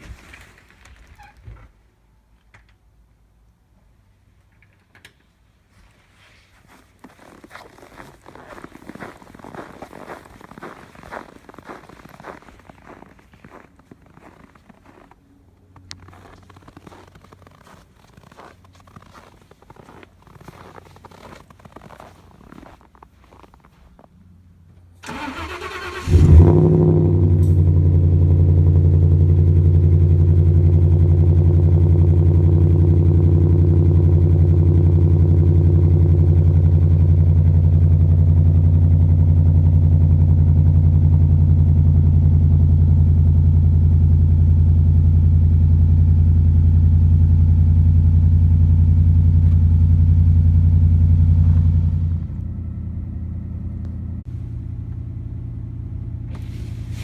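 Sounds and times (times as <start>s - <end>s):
pickup truck engine starting and idling: 25.0s - 57.0s.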